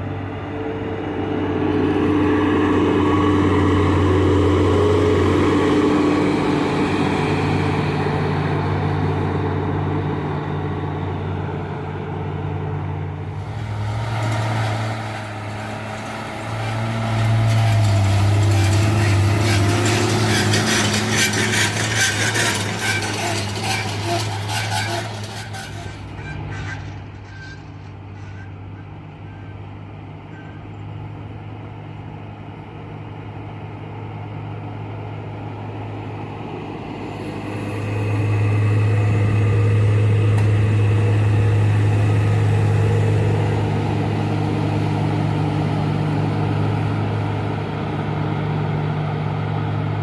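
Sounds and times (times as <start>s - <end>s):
heavy machine diesel engines: 0.0s - 50.0s
rapid clatter: 17.5s - 27.8s.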